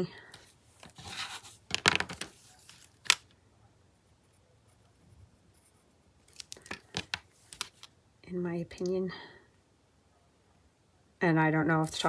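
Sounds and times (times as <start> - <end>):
paper rustling: 0.3 - 3.2, 5.6 - 7.9.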